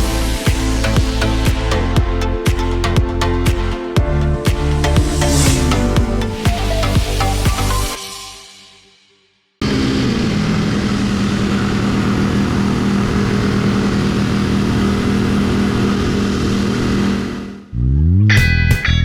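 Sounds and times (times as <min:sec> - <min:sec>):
motorcycle engine running: 0:00.0 - 0:07.4, 0:09.6 - 0:17.7
wind rush: 0:04.9 - 0:06.4.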